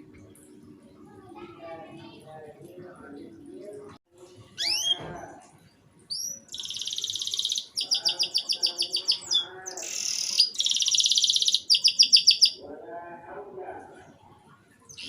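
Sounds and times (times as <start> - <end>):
canary singing: 4.6 - 5.1, 6.1 - 12.8.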